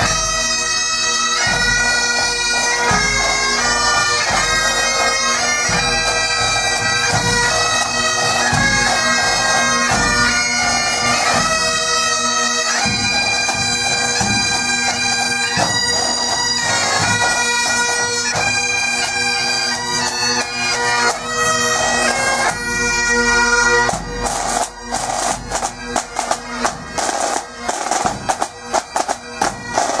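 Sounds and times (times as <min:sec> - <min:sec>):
bagpipes playing: 0:00.0 - 0:30.0
snare drumming: 0:23.9 - 0:30.0.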